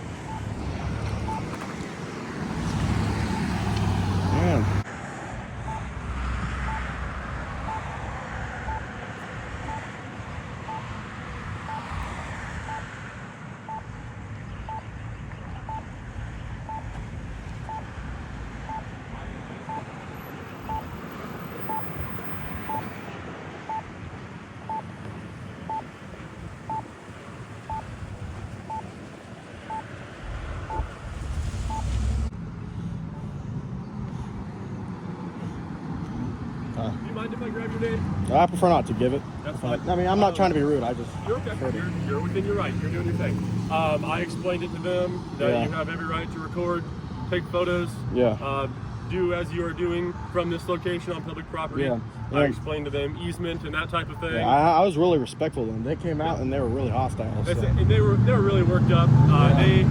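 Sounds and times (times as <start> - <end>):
steady traffic noise: 0.0 - 59.9
short electronic beeps: 0.3 - 0.6, 1.2 - 1.5, 5.7 - 5.9, 6.6 - 6.9, 7.7 - 7.9, 8.7 - 8.9, 9.7 - 9.9, 11.7 - 11.9, 12.7 - 12.9, 13.7 - 14.0, 14.6 - 14.9, 15.7 - 15.9, 16.7 - 16.9, 17.7 - 17.9, 18.7 - 18.9, 19.7 - 19.9, 20.5 - 23.1, 24.7 - 24.9, 27.7 - 27.9, 30.7 - 31.0, 31.7 - 32.0, 41.0 - 42.4, 50.1 - 50.7.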